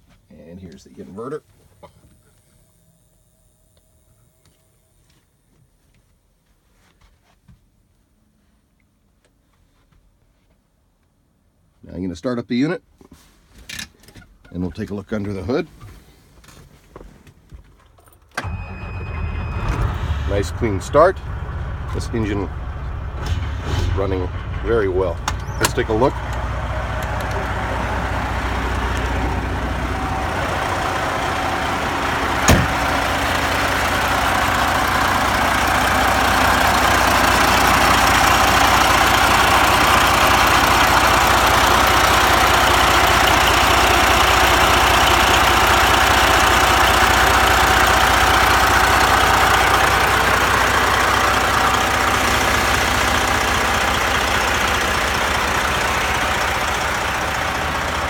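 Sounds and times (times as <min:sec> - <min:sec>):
diesel engine idling: 0:18.4 - 0:58.0
sharp knock: 0:32.5 - 0:32.8.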